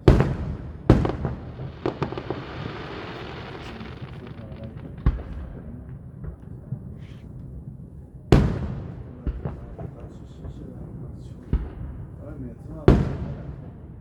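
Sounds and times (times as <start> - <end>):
small firework pops: 0.0 - 7.6, 8.4 - 10.8, 11.4 - 12.1
fireworks bangs: 0.0 - 14.0
steady hiss: 1.1 - 5.6.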